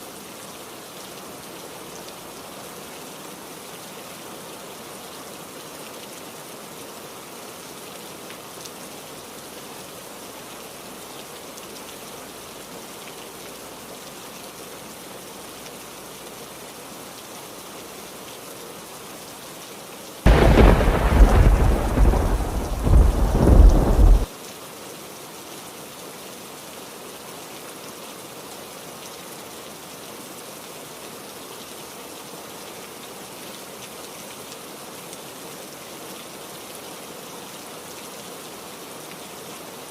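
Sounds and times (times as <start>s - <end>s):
steady heavy rain: 0.0s - 39.9s
loud thunderclap rumbling: 20.3s - 24.3s.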